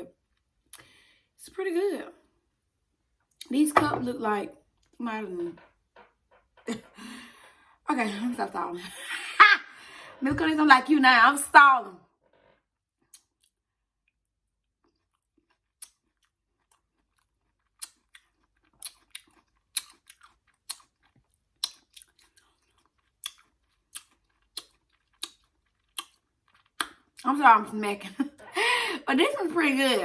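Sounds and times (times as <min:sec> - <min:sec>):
person chewing with wet smacks: 0:13.0 - 0:27.2.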